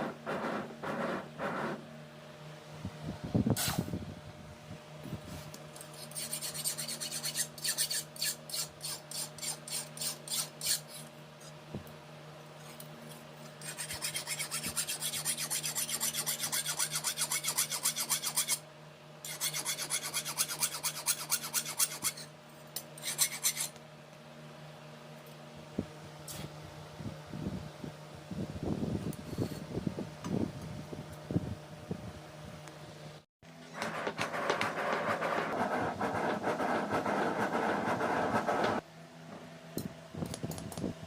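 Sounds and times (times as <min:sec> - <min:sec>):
hand file rasping on steel: 0:05.8 - 0:11.1, 0:13.6 - 0:18.6, 0:19.2 - 0:22.3, 0:23.0 - 0:23.8.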